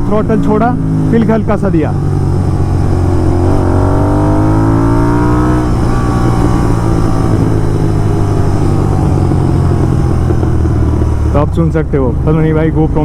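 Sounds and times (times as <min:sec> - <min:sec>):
motorcycle engine: 0:00.0 - 0:13.0.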